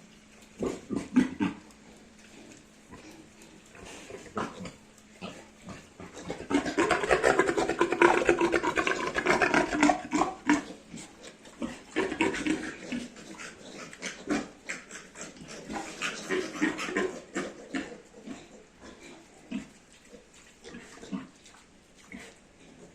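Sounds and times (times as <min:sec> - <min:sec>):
piglet grunting and squealing: 0:00.6 - 0:01.7, 0:03.0 - 0:19.8.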